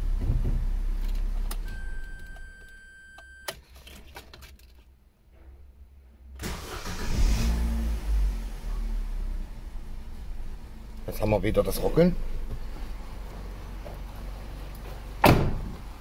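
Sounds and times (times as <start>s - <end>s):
starter cranking engine: 6.4s - 7.5s
car engine idling and stopping: 6.4s - 15.2s.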